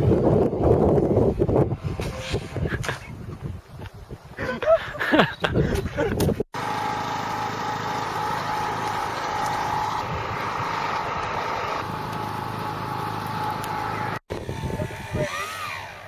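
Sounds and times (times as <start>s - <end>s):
model aircraft motor running: 6.6s - 16.0s.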